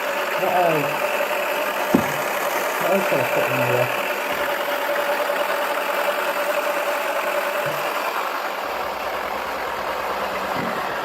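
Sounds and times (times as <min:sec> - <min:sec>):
toy washing machine motor whine: 0:00.0 - 0:11.0.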